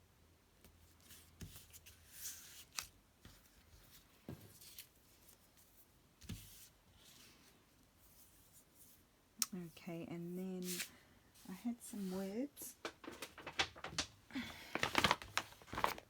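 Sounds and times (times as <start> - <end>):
paper rustling and sliding: 10.6 - 16.0.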